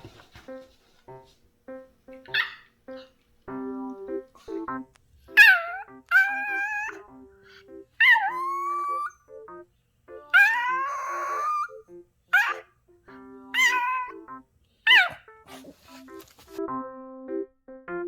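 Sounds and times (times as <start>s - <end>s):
background music: 0.0s - 18.0s
dog yelp: 2.2s - 3.1s, 5.3s - 7.0s, 8.0s - 9.3s, 10.3s - 12.7s, 13.5s - 14.2s, 14.8s - 16.0s
dog whining and howling: 5.4s - 7.1s, 8.0s - 9.4s, 10.3s - 12.6s, 13.5s - 14.3s, 14.9s - 15.8s.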